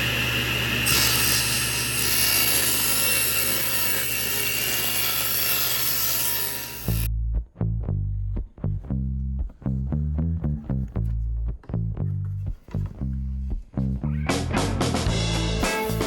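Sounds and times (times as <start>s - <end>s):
power tool working wood: 0.0s - 7.1s
plucked bass guitar music: 7.1s - 16.0s.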